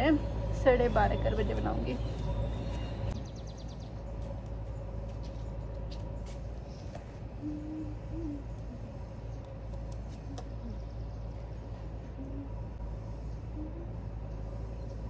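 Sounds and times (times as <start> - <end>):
low rumble: 0.0 - 15.0
bird hooting softly: 6.7 - 14.8.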